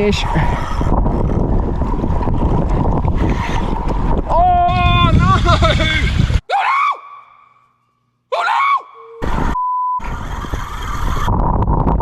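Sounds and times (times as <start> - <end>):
water noise: 0.0 - 6.4
wind noise on microphone: 0.0 - 6.4, 9.2 - 12.0
censor bleep: 9.6 - 10.0.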